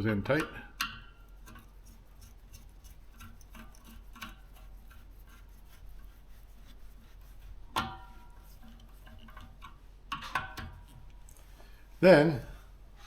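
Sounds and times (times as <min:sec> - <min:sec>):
screwdriver ticking and rubbing on wires: 0:00.3 - 0:11.4.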